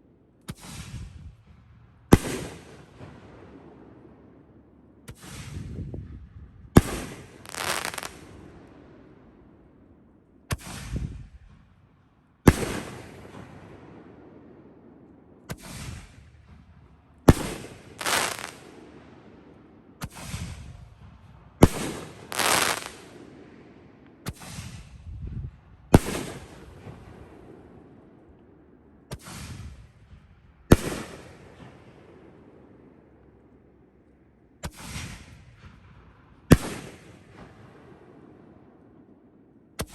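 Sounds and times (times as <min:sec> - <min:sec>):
firework shells bursting: 0:06.9 - 0:08.2, 0:17.3 - 0:18.6, 0:21.9 - 0:23.1.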